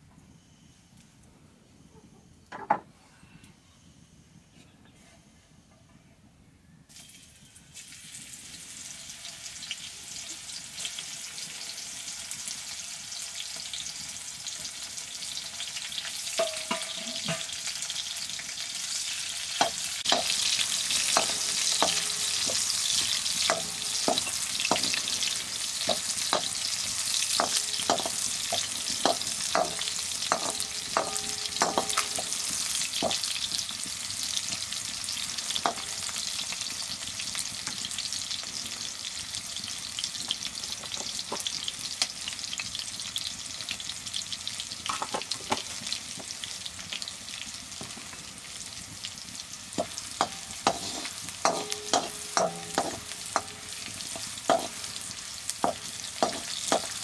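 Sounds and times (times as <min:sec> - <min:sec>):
vegetables sizzling in a wok: 0:06.9 - 0:57.0
wooden ladle knocking on wok: 0:16.4 - 0:17.5, 0:21.1 - 0:26.6, 0:27.3 - 0:33.3, 0:49.8 - 0:54.9, 0:55.6 - 0:57.0.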